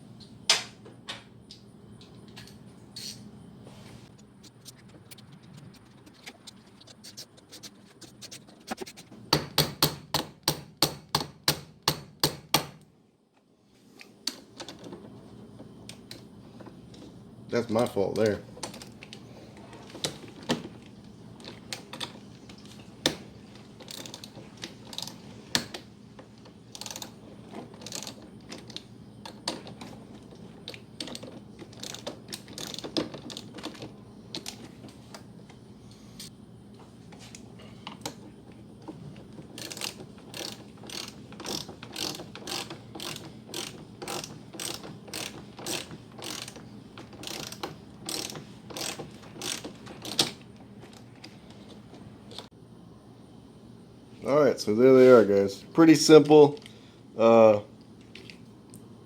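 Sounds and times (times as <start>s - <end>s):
ratchet wrench clicking: 23.8s - 24.3s, 24.9s - 25.7s, 26.7s - 27.2s, 27.8s - 28.8s, 31.0s - 33.8s, 39.6s - 50.4s.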